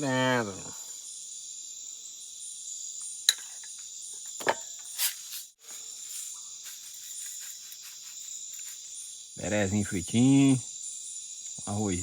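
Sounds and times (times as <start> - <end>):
crickets and insects chirring: 0.0 - 12.0
short rustle: 4.9 - 9.0.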